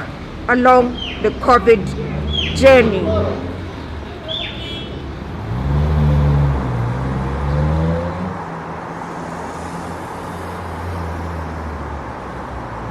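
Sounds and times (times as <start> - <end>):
vehicle engine accelerating: 0.0 - 12.9.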